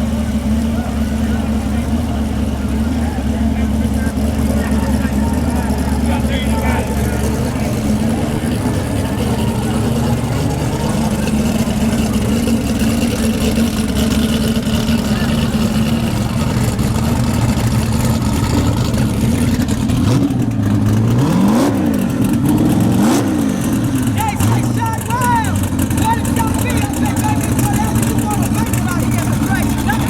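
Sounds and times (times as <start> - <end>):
drag-race car engine revving: 0.0 - 30.0.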